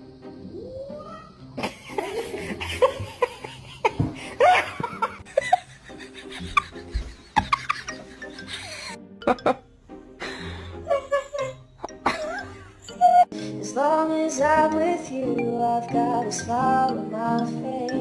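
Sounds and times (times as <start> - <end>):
person laughing hard: 1.6 - 9.6, 10.2 - 13.3.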